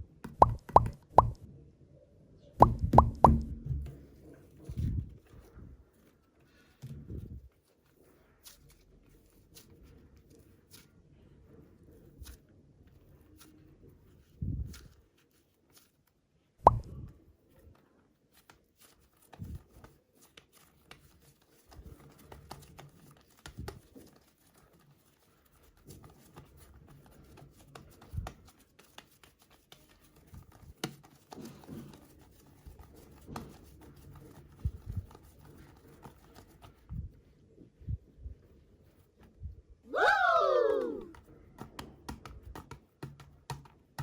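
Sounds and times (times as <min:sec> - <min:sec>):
clay squishing and plopping: 0:00.1 - 0:01.5, 0:02.6 - 0:05.1, 0:16.6 - 0:17.1
hand smacking clay: 0:00.2 - 0:01.4, 0:02.6 - 0:04.0, 0:40.8 - 0:44.0.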